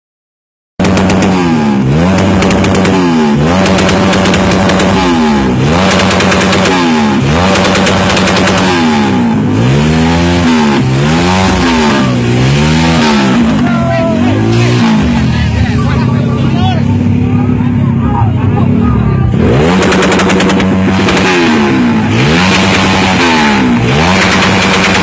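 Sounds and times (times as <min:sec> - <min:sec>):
exhaust popping: 0:00.8 - 0:25.0
motorcycle engine revving: 0:00.8 - 0:25.0.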